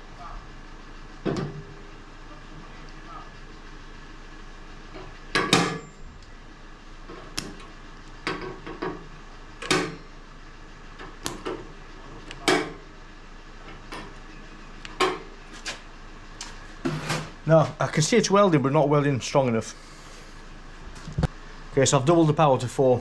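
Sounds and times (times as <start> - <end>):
spot welder sharp snaps: 7.3 - 7.7, 11.2 - 11.6.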